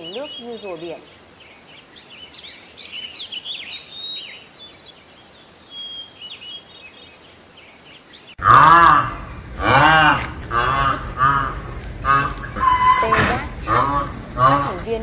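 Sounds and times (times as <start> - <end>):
loud rising and falling call: 8.4 - 14.2.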